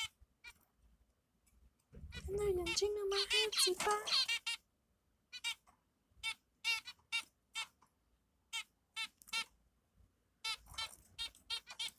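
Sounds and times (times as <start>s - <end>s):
baby birds cheeping: 0.0s - 0.6s, 2.0s - 7.8s, 8.4s - 9.6s, 10.4s - 11.9s.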